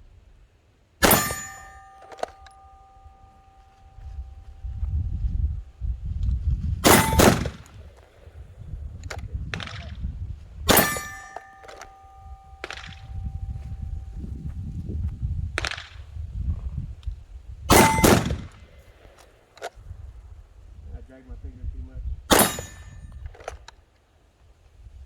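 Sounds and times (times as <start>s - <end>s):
handgun shots: 1.0s - 3.5s, 6.8s - 7.7s, 10.7s - 13.2s, 17.7s - 18.4s, 22.3s - 23.6s
metallic clang ringing: 1.0s - 4.9s, 6.8s - 7.7s, 10.7s - 14.3s, 17.7s - 18.4s, 22.3s - 23.2s.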